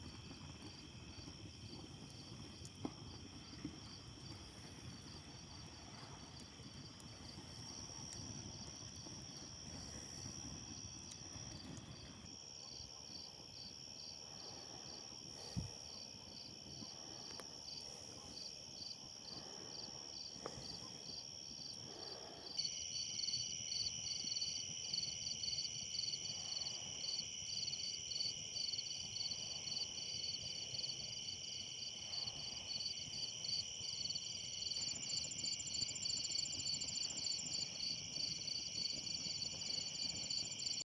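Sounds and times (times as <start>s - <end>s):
rapid pulsing insect chirp: 0.0s - 40.8s
insects trilling: 18.8s - 40.8s.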